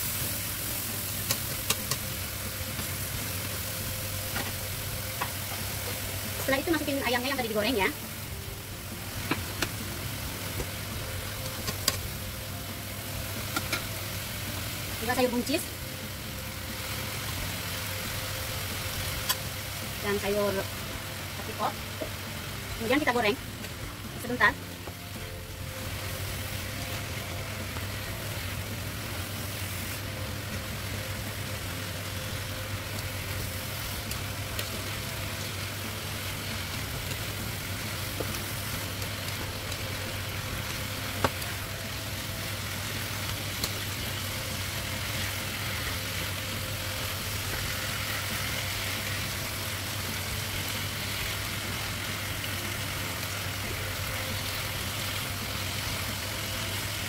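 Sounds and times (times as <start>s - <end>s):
food sizzling in a pan: 0.0s - 57.0s.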